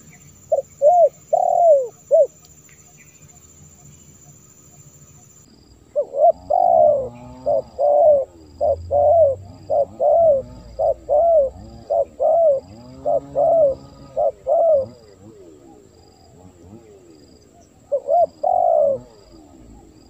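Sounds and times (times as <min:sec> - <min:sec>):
dove cooing: 0:00.0 - 0:02.4, 0:06.0 - 0:20.0.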